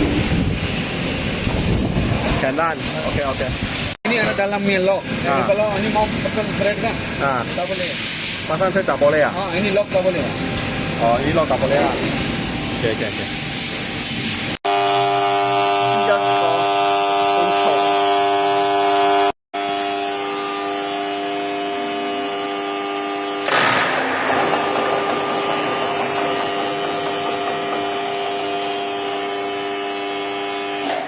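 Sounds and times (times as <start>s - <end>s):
lathe running with whine: 14.7s - 22.8s, 23.5s - 30.8s
short rushing noise: 23.5s - 29.7s.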